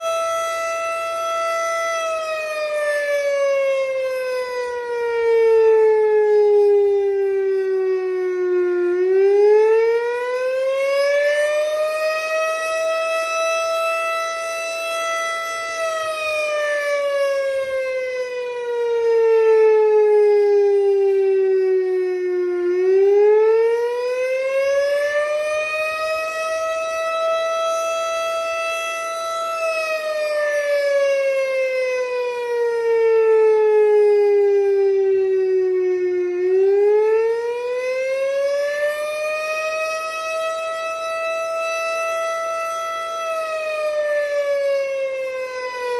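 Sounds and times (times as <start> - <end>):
fire truck siren wailing: 0.0 - 45.9.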